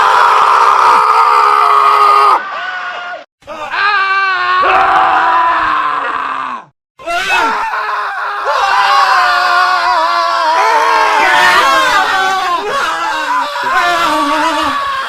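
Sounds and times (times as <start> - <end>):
men screaming: 0.0 - 15.0.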